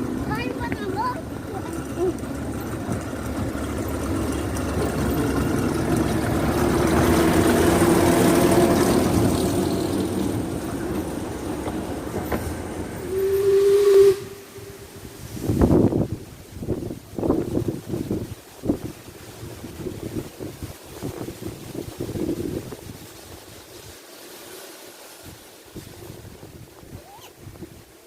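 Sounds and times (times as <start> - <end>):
steam train running past: 0.0 - 24.7
train whistle blast: 13.0 - 15.2.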